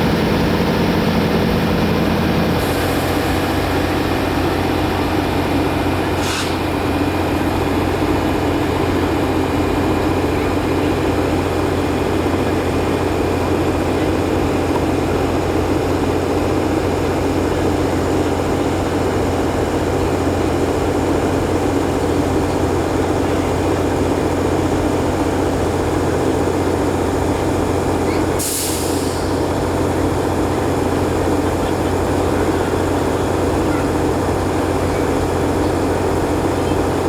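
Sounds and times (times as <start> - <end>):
brake air hiss: 0.0 - 7.8, 28.1 - 29.8
diesel locomotive idling: 0.0 - 37.0.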